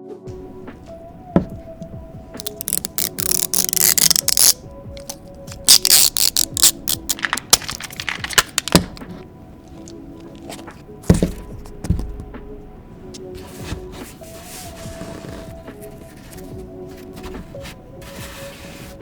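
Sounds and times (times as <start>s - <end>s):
light background music: 0.0s - 19.0s
soft thuds: 10.5s - 12.7s
sand crunching and scraping: 13.3s - 19.0s.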